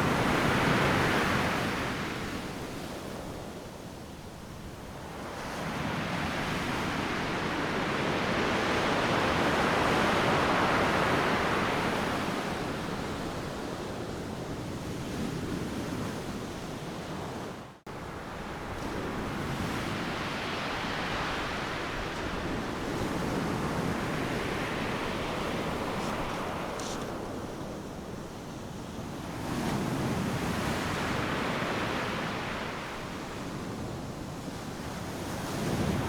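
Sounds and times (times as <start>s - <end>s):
ocean surf breaking: 18.4s - 28.6s.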